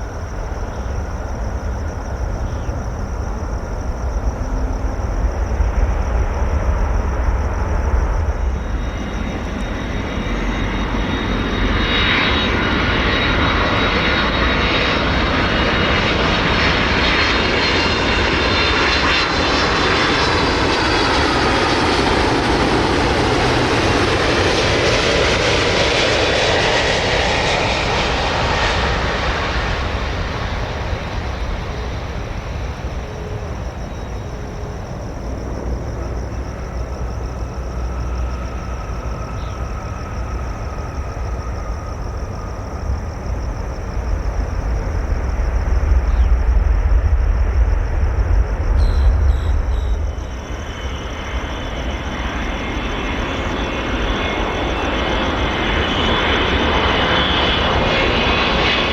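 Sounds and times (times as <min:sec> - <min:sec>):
jet aircraft flying past: 0:00.0 - 0:58.9.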